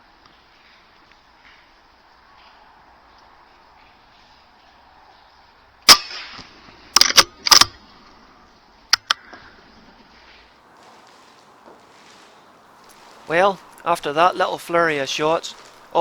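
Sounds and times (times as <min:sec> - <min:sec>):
air rifle cracks: 0:05.9 - 0:07.8.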